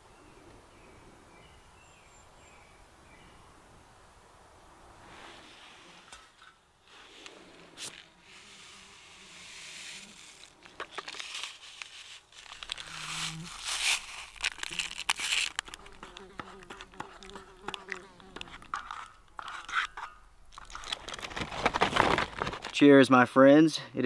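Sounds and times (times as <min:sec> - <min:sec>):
crinkling: 0:06.0 - 0:22.8
fly buzzing: 0:07.9 - 0:10.6, 0:12.3 - 0:18.9.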